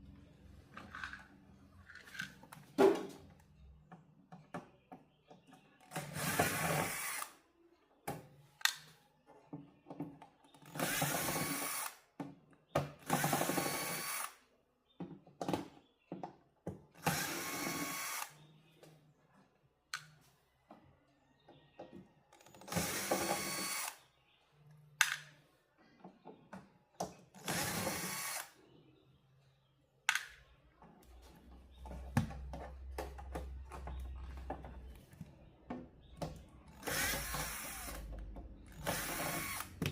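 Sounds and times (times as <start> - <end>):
power drill running: 6.0 - 7.3, 10.7 - 12.0, 13.0 - 14.4, 17.0 - 18.4, 22.4 - 24.0, 27.4 - 28.5, 36.7 - 38.1, 38.7 - 39.9.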